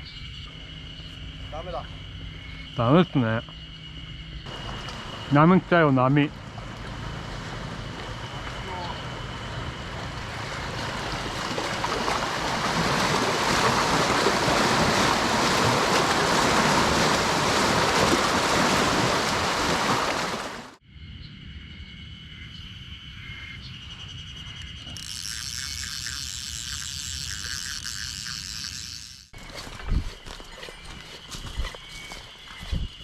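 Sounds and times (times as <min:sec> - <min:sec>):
lake waves washing in: 0:04.5 - 0:20.8
wind on microphone: 0:32.6 - 0:33.0.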